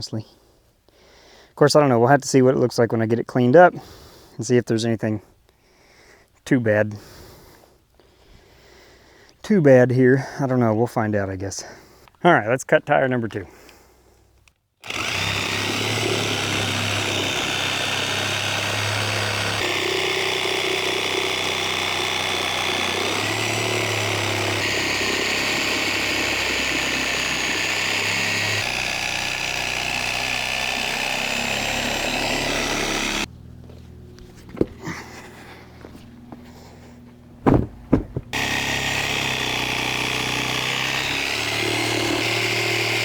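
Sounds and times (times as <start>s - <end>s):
power tool cutting rubber: 14.8s - 33.3s, 37.4s - 43.0s.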